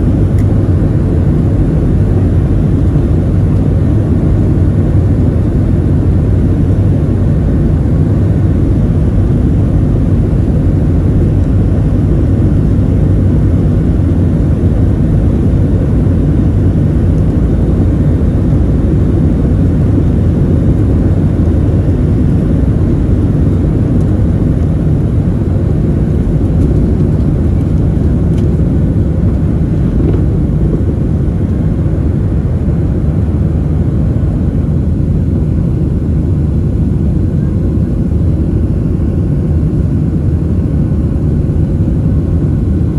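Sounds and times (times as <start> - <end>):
jet engine cabin rumble: 0.0 - 42.9.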